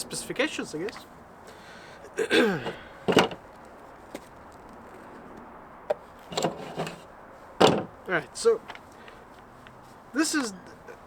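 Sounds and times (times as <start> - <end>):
sharp handling knock: 2.6 - 3.4, 7.6 - 8.0
murmured voice: 10.2 - 11.0.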